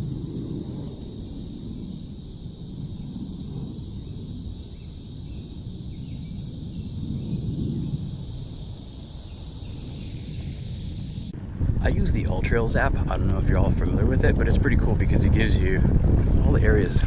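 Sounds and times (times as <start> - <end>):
insect chorus buzzing: 0.0 - 11.4
low rumble: 11.3 - 17.0.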